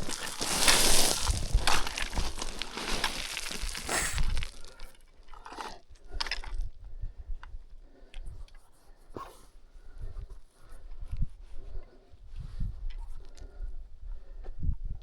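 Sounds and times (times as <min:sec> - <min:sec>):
footsteps crunching on stony ground: 0:00.0 - 0:05.0.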